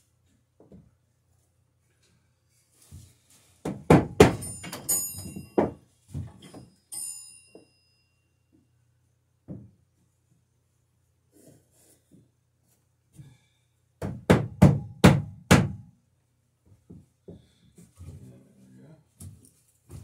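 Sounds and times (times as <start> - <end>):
wood and tools knocking: 3.6 - 6.7
short metallic rings: 4.4 - 8.3.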